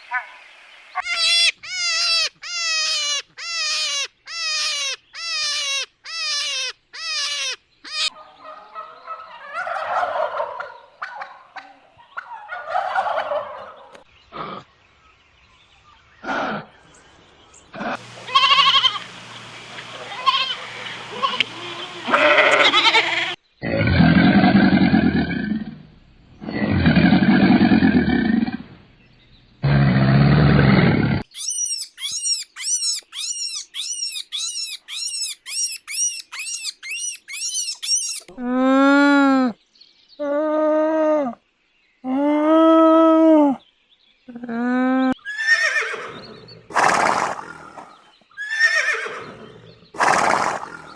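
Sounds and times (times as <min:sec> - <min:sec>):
high repeated animal calls: 0:00.0 - 0:14.7, 0:17.7 - 0:19.1, 0:19.8 - 0:25.5, 0:29.6 - 0:39.6, 0:40.2 - 0:41.4, 0:42.0 - 0:43.6, 0:44.3 - 0:50.9
low rough animal roars: 0:23.6 - 0:28.8, 0:29.6 - 0:31.2.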